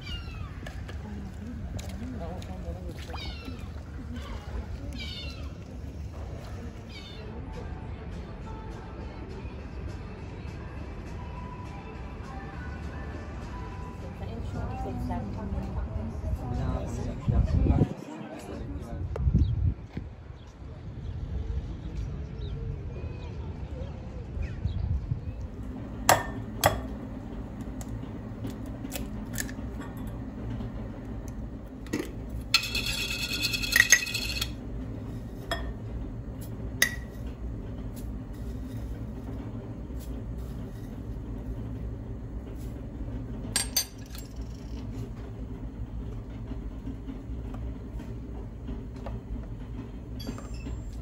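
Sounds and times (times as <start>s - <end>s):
steady low hum: 24.9s - 51.0s.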